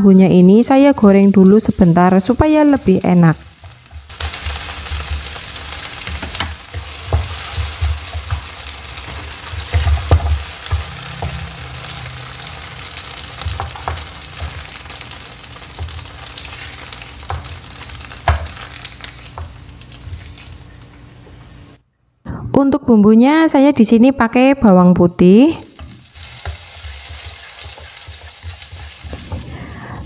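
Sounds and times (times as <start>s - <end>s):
tofu sizzling in hot oil: 3.3s - 20.6s, 25.7s - 29.4s
wooden spatula knocking pan: 6.0s - 11.4s.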